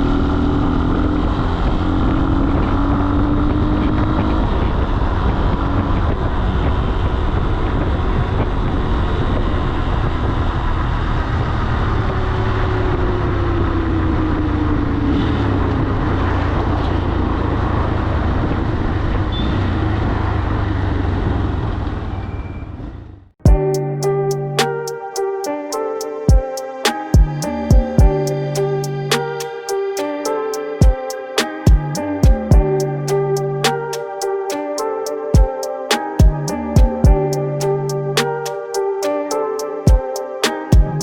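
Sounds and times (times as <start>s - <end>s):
motorcycle engine running: 0.0s - 15.0s, 31.7s - 33.9s
road noise: 0.0s - 41.0s
wind noise: 4.0s - 10.7s.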